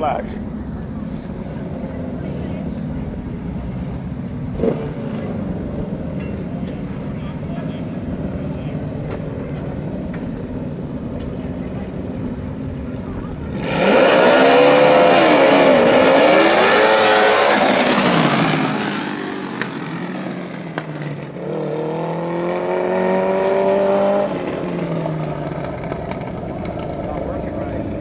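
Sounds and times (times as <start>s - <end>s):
second engine revving: 2.7s - 7.4s, 13.2s - 28.0s
lawn mower engine revving: 13.5s - 27.8s.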